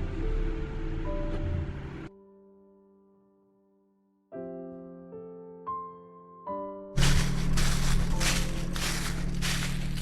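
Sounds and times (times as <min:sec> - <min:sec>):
low hum: 0:07.0 - 0:10.0.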